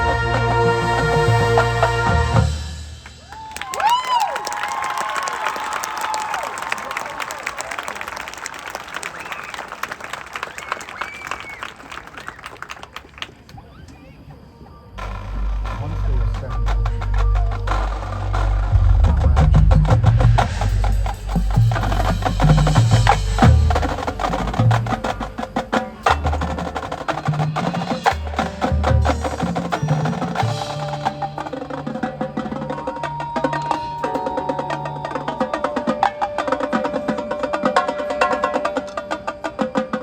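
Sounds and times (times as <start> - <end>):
marching band music: 0.0 - 3.7, 15.0 - 40.0
heavy low bass notes: 15.0 - 26.4
rapid drum and wood-block strokes: 15.0 - 33.6.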